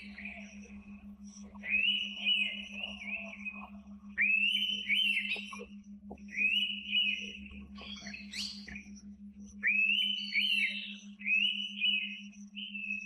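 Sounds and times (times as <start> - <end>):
steady low hum: 0.0 - 13.0
bird whistled calls: 1.6 - 3.6, 4.2 - 5.6, 9.6 - 13.0.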